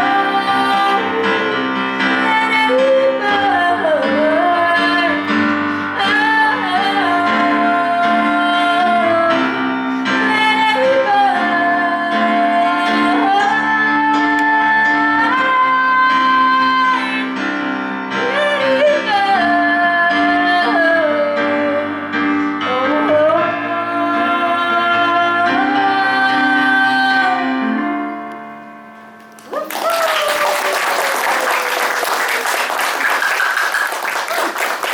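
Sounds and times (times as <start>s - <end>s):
woman singing: 0.0s - 28.2s
piano chords: 0.0s - 34.9s
audience applause: 29.3s - 34.9s.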